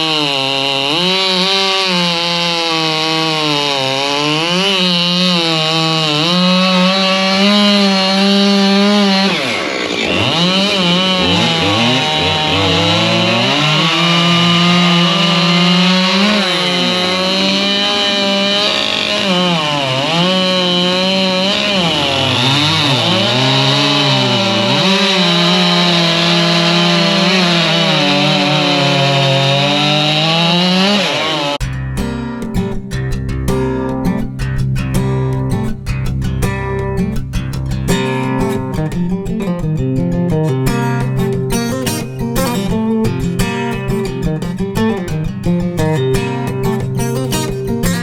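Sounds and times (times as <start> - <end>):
chainsaw cutting wood: 0.0 - 32.2, 45.9 - 48.0.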